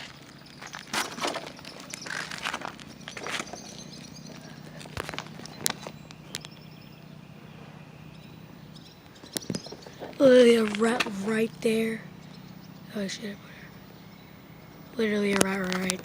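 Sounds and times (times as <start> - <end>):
footsteps on debris: 0.0 - 6.5, 9.4 - 11.3
steady low hum: 0.0 - 16.0.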